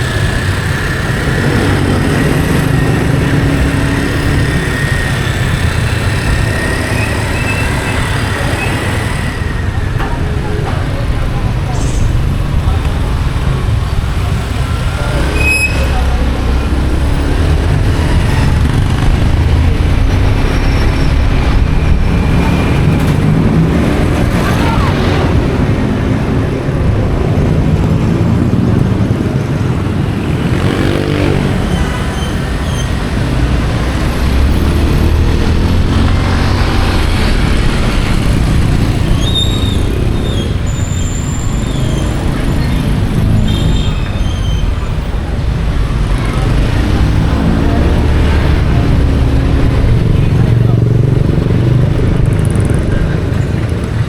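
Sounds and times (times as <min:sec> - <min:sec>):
motorcycle engine: 0:00.0 - 0:54.0
traffic noise: 0:00.0 - 0:54.0.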